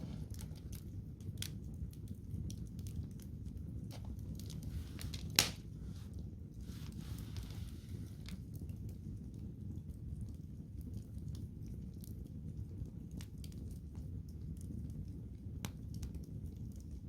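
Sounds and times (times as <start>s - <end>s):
campfire crackling: 0.0s - 17.0s
low steady rumble: 0.0s - 17.0s
loud fire pop: 5.1s - 5.6s.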